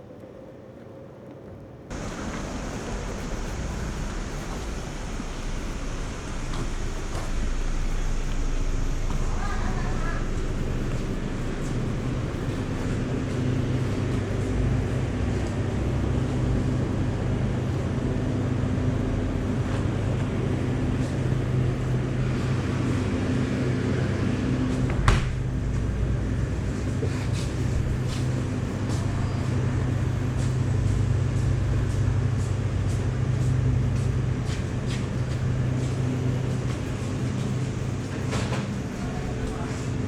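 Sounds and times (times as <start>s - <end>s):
motorcycle engine idling: 1.9s - 15.0s.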